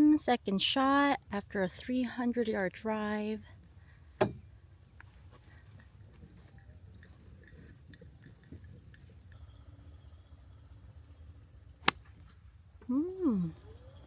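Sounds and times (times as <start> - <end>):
small scattered clicks: 5.7 - 9.4
golf club striking ball: 11.8 - 12.4.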